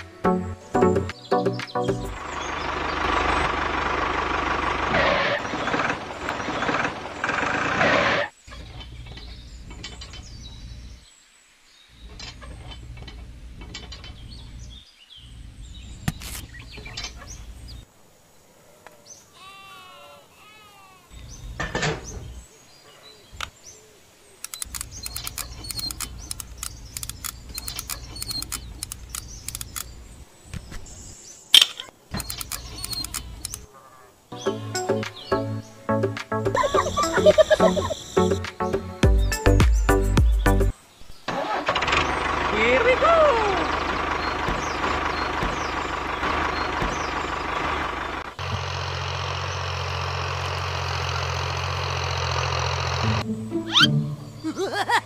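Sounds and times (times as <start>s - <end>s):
music: 0.0s - 2.2s, 34.3s - 40.7s, 53.2s - 54.5s
bird chirps: 21.1s - 33.7s, 34.3s - 41.3s, 42.0s - 47.8s, 53.2s - 54.9s
plastic toy parts clicking: 24.4s - 29.9s, 31.6s - 33.6s.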